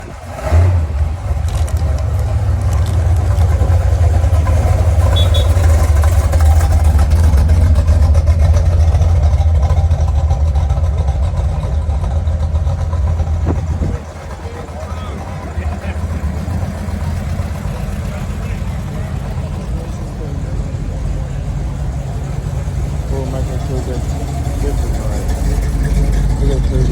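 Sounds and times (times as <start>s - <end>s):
car engine rumbling: 0.0s - 26.9s.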